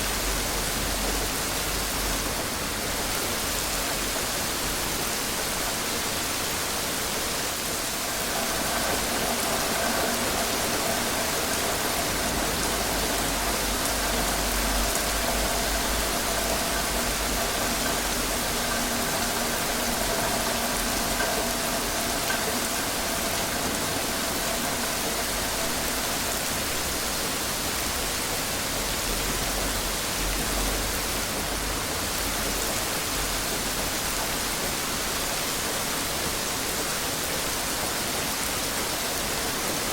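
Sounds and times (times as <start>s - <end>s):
steady rainfall: 0.0s - 39.9s
faint steady hum: 7.7s - 27.4s.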